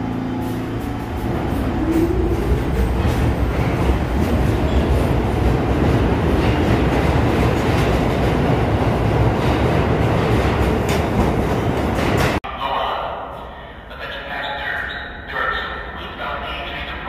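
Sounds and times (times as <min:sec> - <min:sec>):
subway train rumbling: 0:00.0 - 0:17.0.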